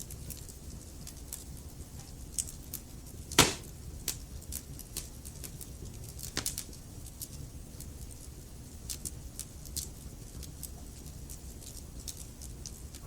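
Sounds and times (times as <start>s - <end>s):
fire crackling and popping: 0.1s - 13.0s
loud wood snap: 3.4s - 3.7s.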